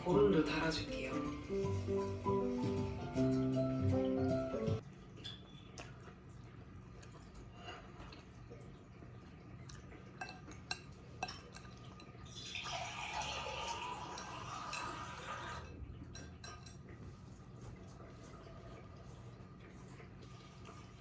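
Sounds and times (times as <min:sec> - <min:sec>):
liquid pouring: 0:04.8 - 0:21.0
dishes clinking: 0:05.2 - 0:05.7, 0:09.7 - 0:17.2.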